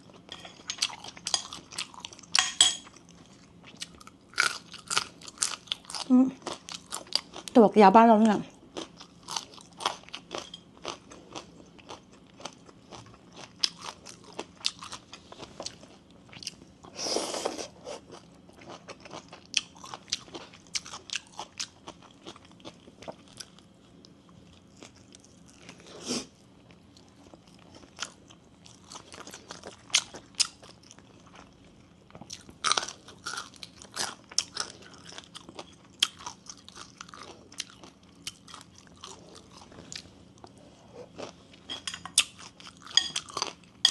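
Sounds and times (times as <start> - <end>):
mouth crunching and chewing: 8.7 - 16.8, 26.6 - 43.9.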